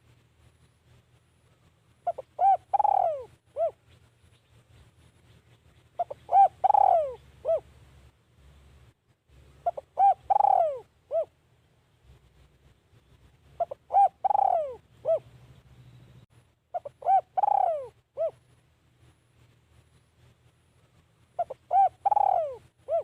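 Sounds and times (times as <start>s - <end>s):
dove cooing: 2.0s - 4.0s, 6.0s - 7.8s, 9.6s - 11.4s, 13.6s - 15.4s, 16.7s - 18.4s, 21.4s - 23.0s.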